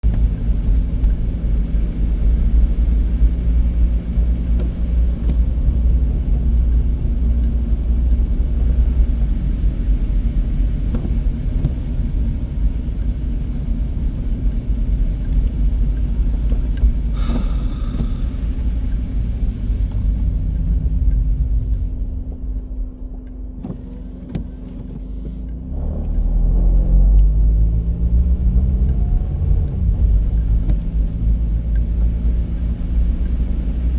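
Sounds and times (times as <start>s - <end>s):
car engine and tyre rumble: 0.0s - 33.9s
brief hiss: 17.2s - 18.5s.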